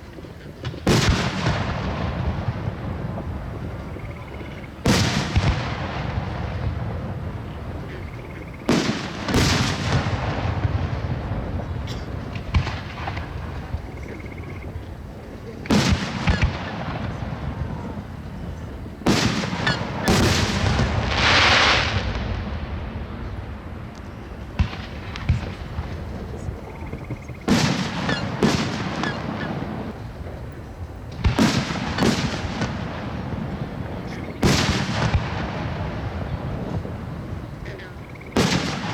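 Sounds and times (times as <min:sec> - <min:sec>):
firework shells bursting with booms: 0:00.1 - 0:38.9
hissing firework burst: 0:15.6 - 0:26.8.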